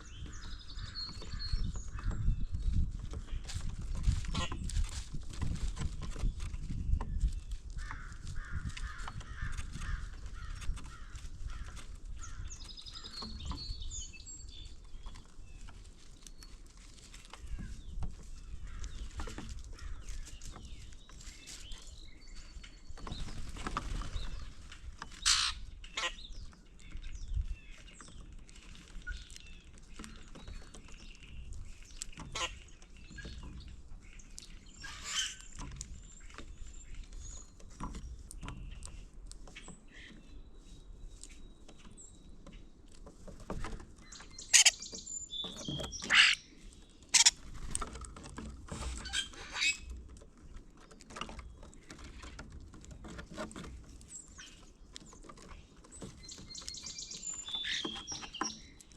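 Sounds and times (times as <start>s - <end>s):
songbirds chirping: 0.0s - 58.9s
harsh bird calls: 25.2s - 26.4s, 44.0s - 47.4s, 56.2s - 58.8s.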